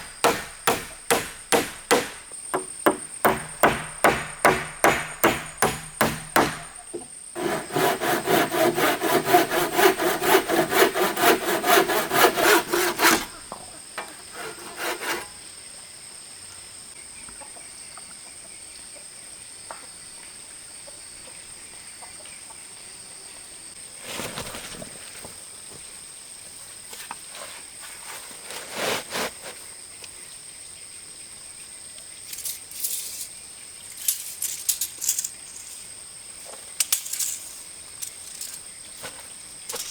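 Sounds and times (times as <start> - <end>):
hand saw cutting wood: 0.0 - 6.8, 7.4 - 15.4
sharp strikes on wood: 0.0 - 13.3
knocks on wood: 0.1 - 7.0.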